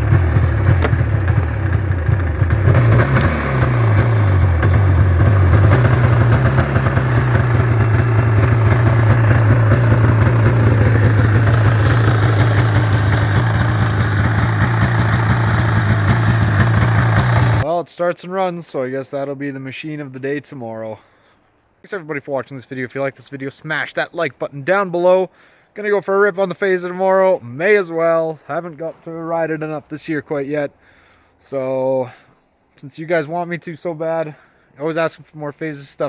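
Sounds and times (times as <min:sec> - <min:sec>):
snowmobile engine idling: 0:00.0 - 0:17.6.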